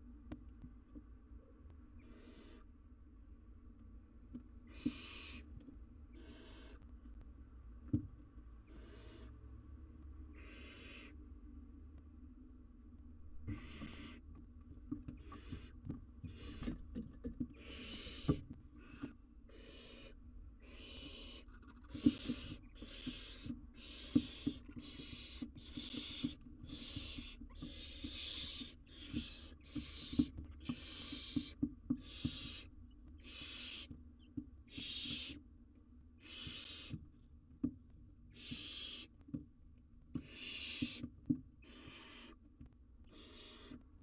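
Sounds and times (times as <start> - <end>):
owlets hissing begging calls: 4.7 - 5.4, 6.2 - 6.8, 10.4 - 11.1, 13.5 - 14.2, 17.6 - 33.9, 34.7 - 35.4, 36.2 - 36.9, 38.4 - 39.1, 40.2 - 41.0, 41.6 - 42.3, 43.1 - 43.8
small knocks and scrapes: 13.4 - 19.2.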